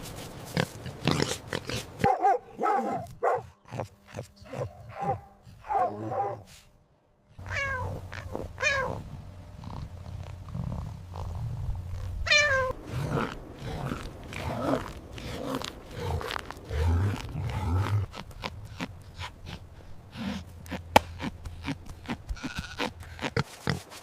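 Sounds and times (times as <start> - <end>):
dog barking: 2.0 - 3.5
cat meowing: 7.4 - 8.0, 12.3 - 12.7.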